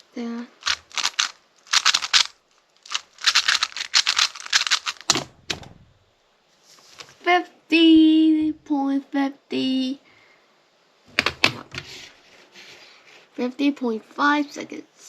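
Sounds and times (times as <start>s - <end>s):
speedcube plastic clicking: 0.6s - 2.3s, 2.9s - 5.7s
dull thump: 5.1s - 6.0s.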